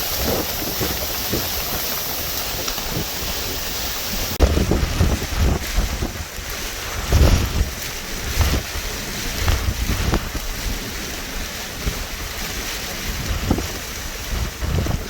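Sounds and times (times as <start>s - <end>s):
steady rushing wind noise: 0.0s - 15.0s
wind buffeting microphone: 0.0s - 15.0s.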